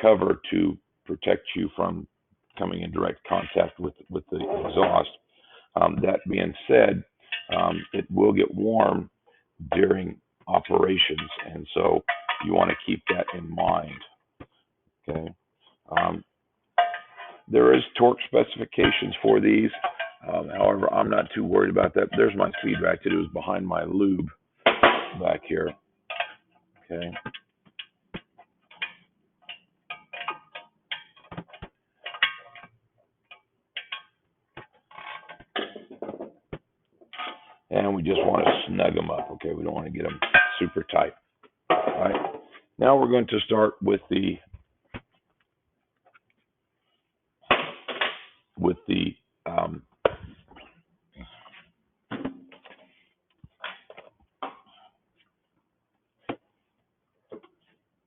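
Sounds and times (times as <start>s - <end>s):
metal clinking: 11.0s - 13.4s, 16.8s - 18.0s, 18.8s - 23.2s, 24.7s - 36.0s, 37.1s - 38.6s, 39.2s - 40.9s
tools set down on a workbench: 16.8s - 17.4s, 33.8s - 36.5s.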